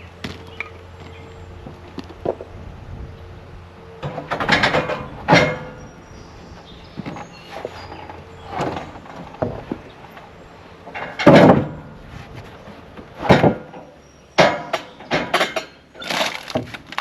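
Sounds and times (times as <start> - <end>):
wooden knocks and cracks: 14.4 - 17.0.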